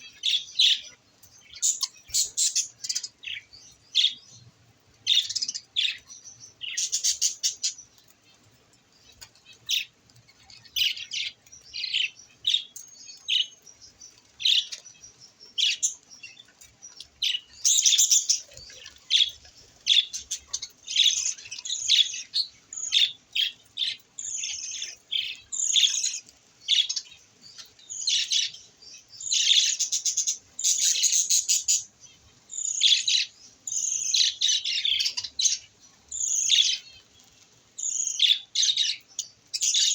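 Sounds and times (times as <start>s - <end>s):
budgerigars chirping: 0.0s - 4.2s, 5.1s - 7.8s, 29.2s - 31.9s.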